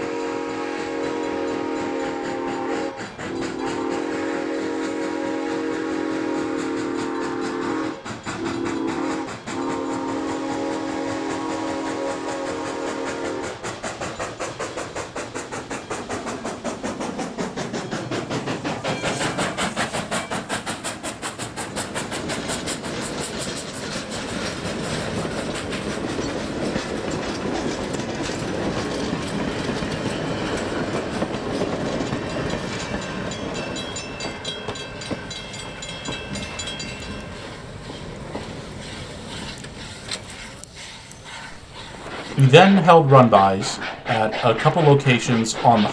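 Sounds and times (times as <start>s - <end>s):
steam locomotive exhaust beats: 0.0s - 45.9s
train cars clattering over rail joints: 6.6s - 40.5s.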